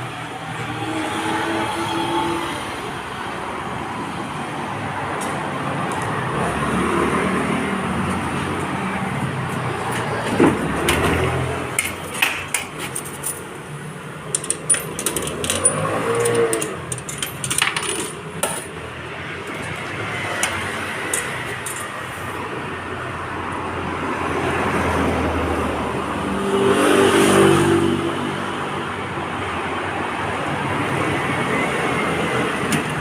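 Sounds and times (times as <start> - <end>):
sharp metallic clinks and clicks: 14.2 - 18.8, 20.4 - 22.0.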